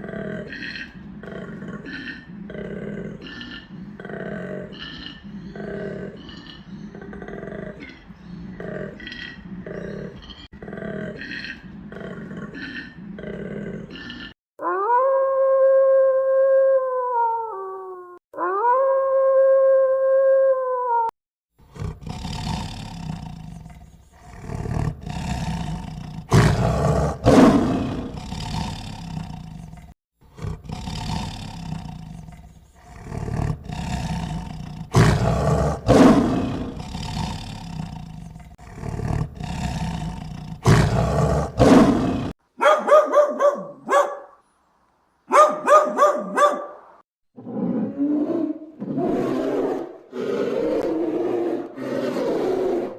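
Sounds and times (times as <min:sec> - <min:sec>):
large animal roaring: 0:21.7 - 0:42.4, 0:47.4 - 0:52.9.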